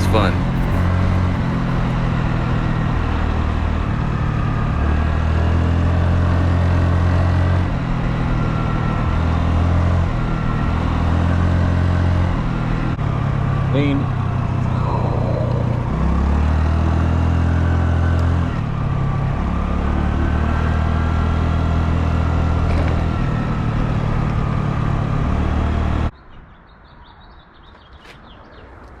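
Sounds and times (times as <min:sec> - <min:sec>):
birds chirping: 0:00.0 - 0:02.1, 0:13.7 - 0:16.1
motorbike engine running: 0:00.0 - 0:02.4.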